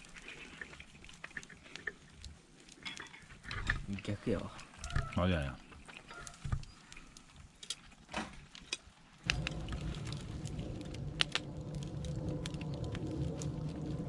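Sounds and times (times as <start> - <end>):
burning wood crackling: 0.0 - 14.0
steady low rumbling: 9.2 - 14.0.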